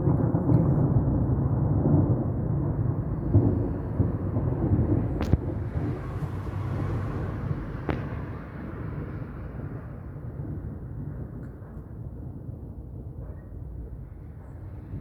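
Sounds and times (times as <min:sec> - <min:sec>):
thunder rumbling: 0:00.0 - 0:11.2.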